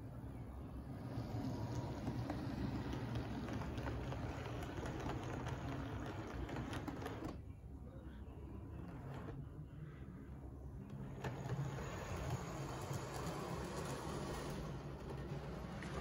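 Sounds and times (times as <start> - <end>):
model train wheels clicking: 1.0 - 7.4, 10.9 - 16.0.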